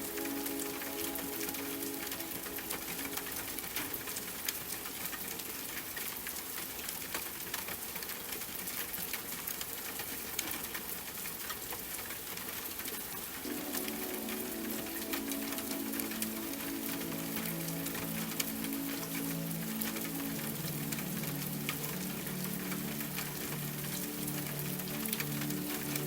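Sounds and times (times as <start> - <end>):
soft held music chord: 0.0 - 4.4, 13.4 - 26.0
rain drops ticking: 0.0 - 26.0.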